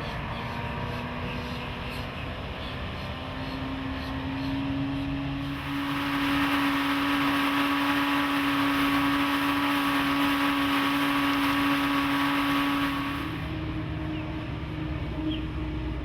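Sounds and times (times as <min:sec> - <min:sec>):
outboard engine running: 0:05.4 - 0:13.6
wind and water rushing: 0:05.4 - 0:13.6.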